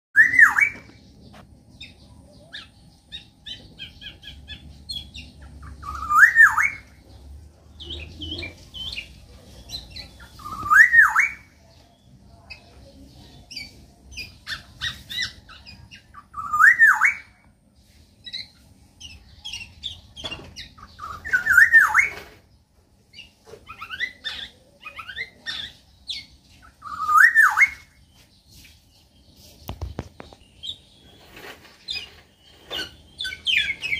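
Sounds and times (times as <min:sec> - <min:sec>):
oriole fluty whistled song: 0:00.2 - 0:00.9, 0:05.8 - 0:06.9, 0:10.4 - 0:11.5, 0:16.3 - 0:17.4, 0:21.0 - 0:22.4, 0:26.8 - 0:28.0
other birds chirping: 0:00.2 - 0:33.9.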